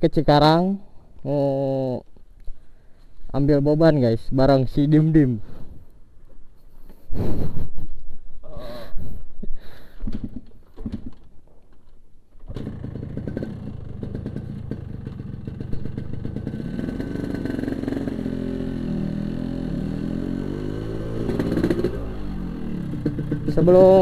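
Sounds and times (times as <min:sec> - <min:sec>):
two-stroke motorcycle engine: 0:12.4 - 0:24.0.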